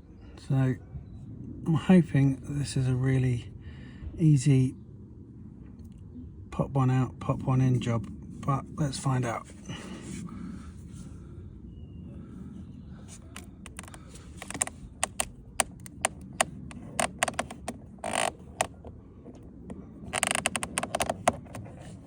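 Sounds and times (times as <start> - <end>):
screwdriver scraping plastic: 13.1 - 22.0
screwdriver clicking on plastic: 13.4 - 18.8, 20.2 - 21.7.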